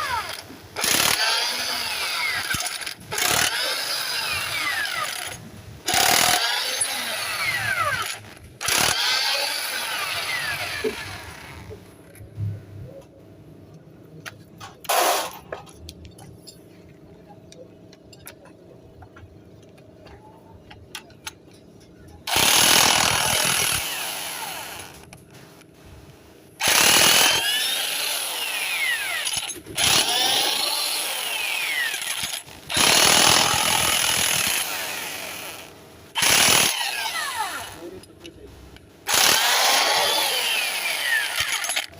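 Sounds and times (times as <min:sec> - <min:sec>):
power tool spinning: 0:00.0 - 0:11.8, 0:22.3 - 0:25.1, 0:26.6 - 0:38.0, 0:39.1 - 0:41.9.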